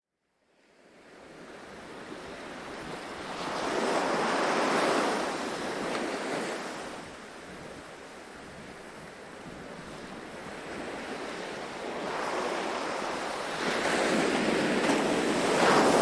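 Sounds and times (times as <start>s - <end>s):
ocean surf wave washing: 10.1s - 16.0s.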